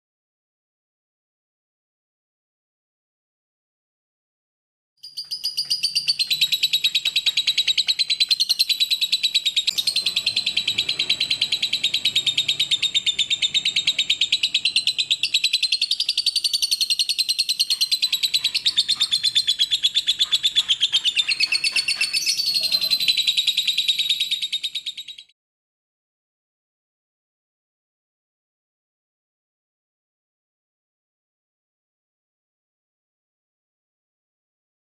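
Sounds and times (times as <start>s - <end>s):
lovebird fast high chirps: 5.0s - 25.3s.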